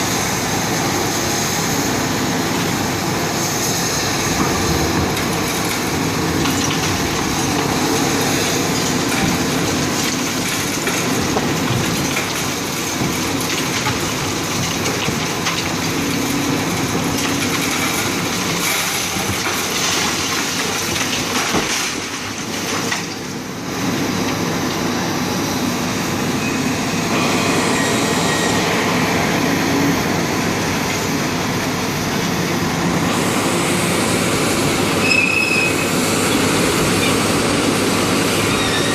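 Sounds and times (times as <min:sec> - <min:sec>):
concrete crunching and crackling: 0:04.2 - 0:25.0.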